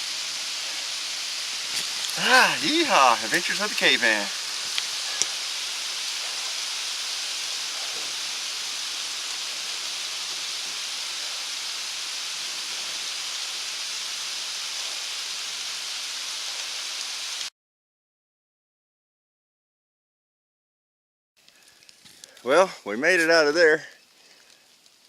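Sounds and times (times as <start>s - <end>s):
heavy rain falling: 0.0s - 17.5s.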